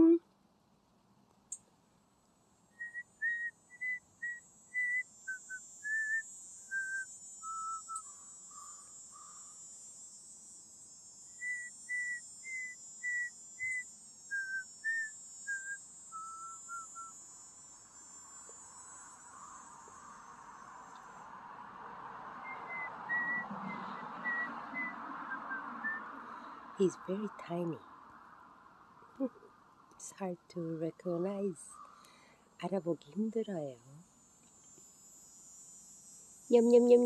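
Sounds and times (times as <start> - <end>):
steady high-pitched hiss: 0.0 - 37.0
person whistling a tune: 22.5 - 26.0.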